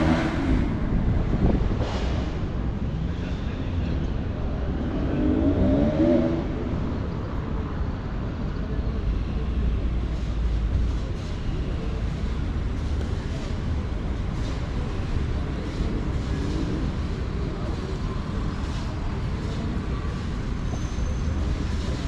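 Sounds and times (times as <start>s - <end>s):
rumble of passing vehicles: 0.0s - 22.0s.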